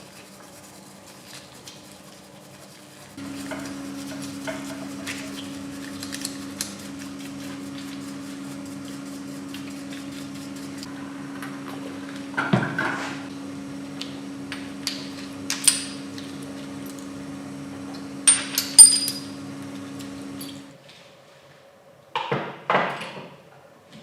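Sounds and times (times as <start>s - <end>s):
machine hum: 3.2s - 20.8s.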